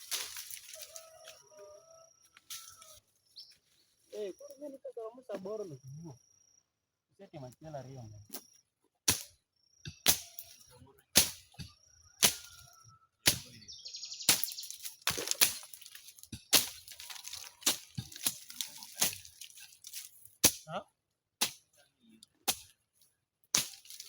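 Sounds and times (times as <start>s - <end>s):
faint high chirping: 0.7s - 8.7s, 9.4s - 15.3s.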